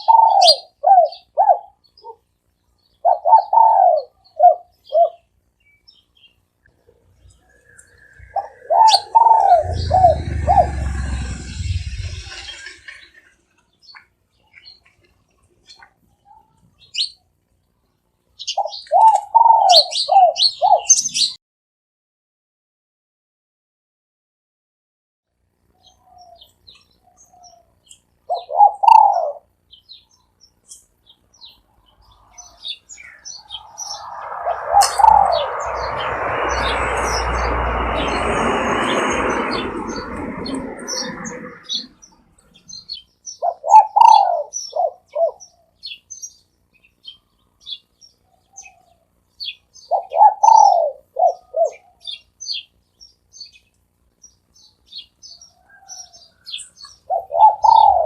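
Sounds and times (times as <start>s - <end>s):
dove cooing: 0.0s - 2.2s, 3.0s - 5.3s, 7.4s - 13.3s, 18.6s - 21.2s, 28.3s - 29.5s, 33.4s - 37.7s, 43.4s - 45.7s, 49.8s - 52.1s, 57.1s - 58.0s
small birds chirping: 0.0s - 21.4s, 25.6s - 58.0s
loud rushing noise: 7.5s - 13.4s, 33.2s - 42.4s.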